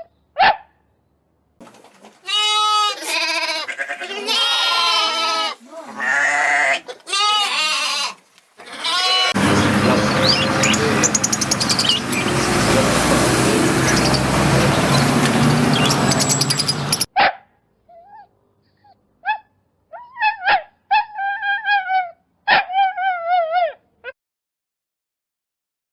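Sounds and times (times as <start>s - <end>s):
loud noisy rushing: 9.4s - 17.1s
dog whining and yipping: 17.9s - 18.3s, 19.3s - 23.8s.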